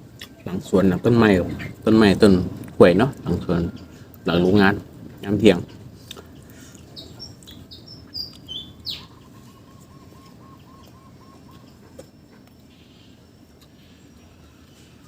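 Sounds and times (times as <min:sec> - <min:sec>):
faint background noise: 0:00.0 - 0:15.0
birds chirping: 0:00.3 - 0:15.0.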